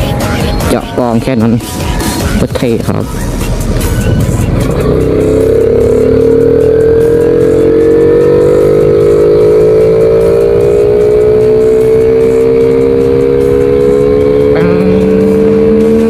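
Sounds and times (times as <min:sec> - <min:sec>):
motorcycle engine accelerating: 0:03.0 - 0:16.0
loud engine intake noise: 0:03.2 - 0:16.0.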